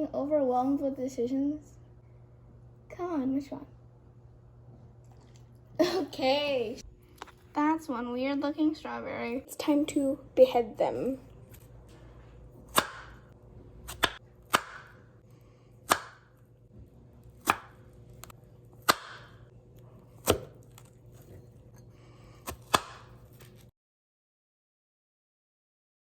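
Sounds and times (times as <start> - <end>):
knife chopping on cutting board: 12.7 - 13.2, 13.8 - 15.0, 15.8 - 16.3, 17.4 - 19.4, 20.0 - 21.4, 22.4 - 23.6.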